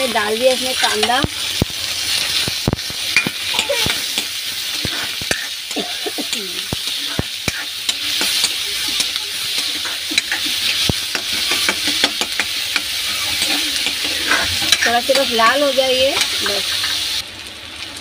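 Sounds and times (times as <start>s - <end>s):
onions sizzling in hot oil: 0.0s - 18.0s
spatula scraping a pan: 3.1s - 17.1s.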